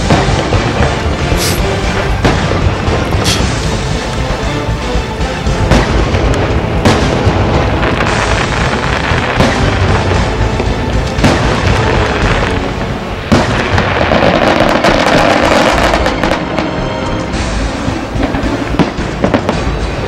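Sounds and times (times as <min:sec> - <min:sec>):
firework shells booming: 0:00.0 - 0:04.8, 0:05.4 - 0:20.0
dense firework crackle: 0:00.0 - 0:20.0.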